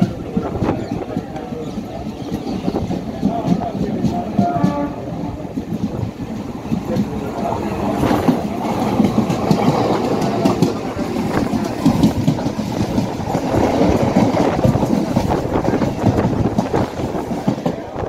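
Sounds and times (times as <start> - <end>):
train passing close by: 0.0 - 18.0
train rumble and wheel clatter: 0.0 - 18.0.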